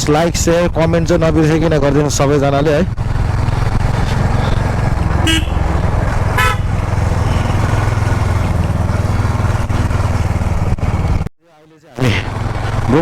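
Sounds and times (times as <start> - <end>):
motorcycle engine running: 0.5 - 11.3, 12.1 - 13.0
horn toots: 4.2 - 8.7.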